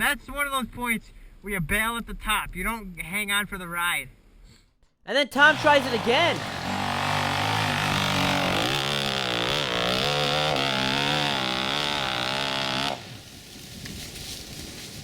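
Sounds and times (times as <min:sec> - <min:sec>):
dirt bike engine revving: 0:05.3 - 0:13.3.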